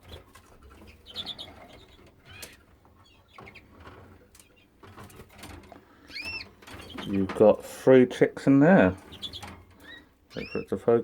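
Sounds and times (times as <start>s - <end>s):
rustling: 0.0s - 7.8s
canaries chirping: 0.0s - 11.0s.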